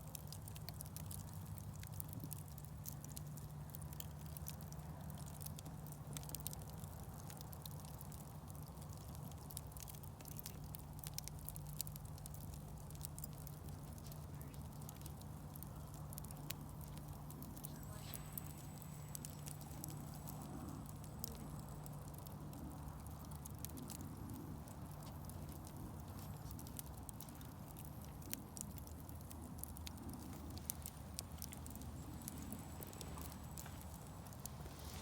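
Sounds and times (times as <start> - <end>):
fire crackling and popping: 0.0 - 35.0
low hum: 13.4 - 26.3, 27.0 - 35.0.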